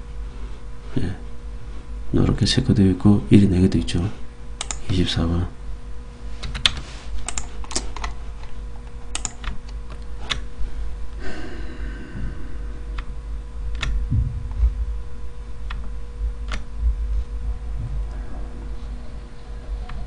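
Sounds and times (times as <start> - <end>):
steady low hum: 0.0 - 20.0
computer keyboard clicks: 4.6 - 5.0, 6.4 - 8.2, 9.1 - 10.4.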